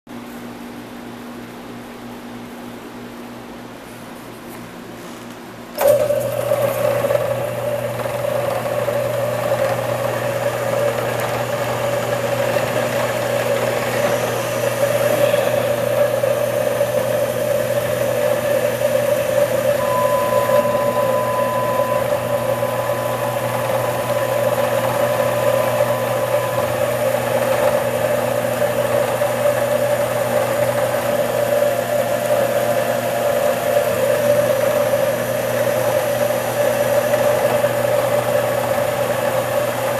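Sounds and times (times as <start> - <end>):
machine mechanical hum: 0.1 - 39.9
faint high whine: 5.8 - 39.0.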